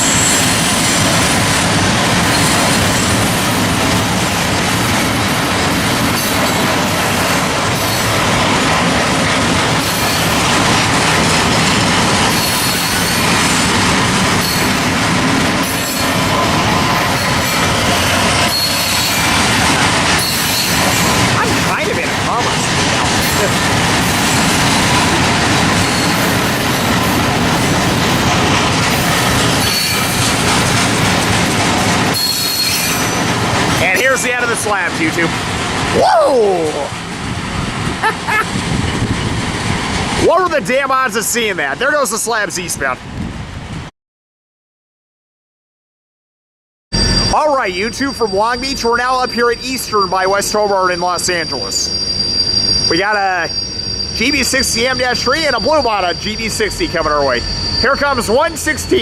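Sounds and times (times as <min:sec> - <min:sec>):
freight train wheels rumbling on rail: 0:00.0 - 0:43.9, 0:47.0 - 0:59.0
faint wheel squeal: 0:51.1 - 0:59.0.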